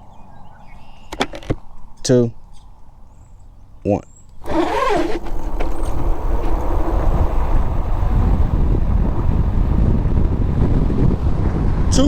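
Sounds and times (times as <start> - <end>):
wind buffeting microphone: 4.4 - 12.0.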